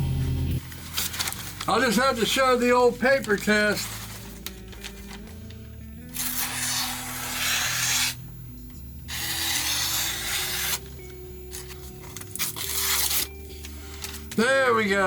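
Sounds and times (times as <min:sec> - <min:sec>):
background music: 0:00.0 - 0:15.0
knife slicing paper: 0:00.7 - 0:01.8, 0:06.1 - 0:08.2, 0:09.1 - 0:14.4.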